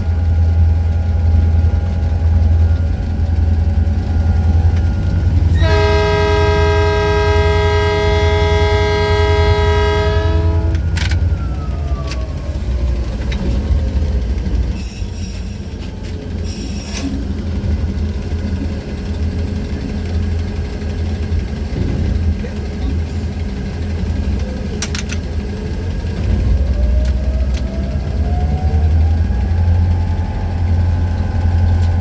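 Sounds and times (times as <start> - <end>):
diesel locomotive engine rumble: 0.0 - 32.0
locomotive horn blast: 4.8 - 11.4.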